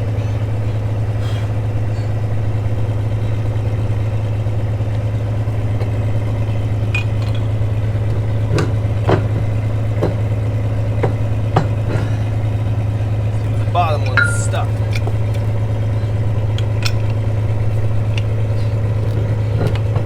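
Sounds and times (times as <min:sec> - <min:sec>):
engine idling: 0:00.0 - 0:20.0
sharp knocks or clinks: 0:14.1 - 0:14.8.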